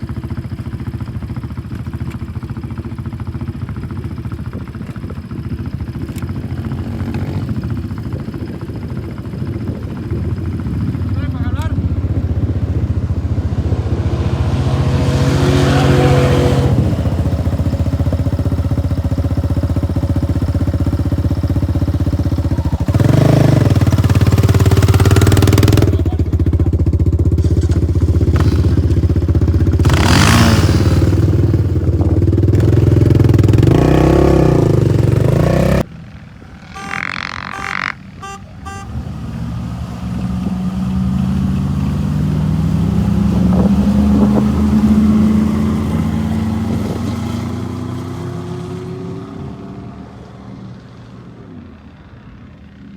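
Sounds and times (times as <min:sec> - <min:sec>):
vehicle engine revving: 0:09.2 - 0:50.3.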